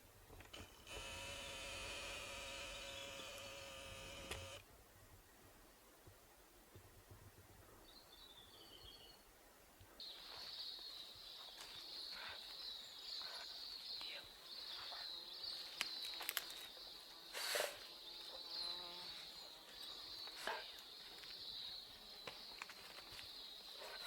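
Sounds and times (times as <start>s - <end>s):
cicada-like insect drone: 0.9s - 4.6s
sharp clicks: 3.2s - 4.6s.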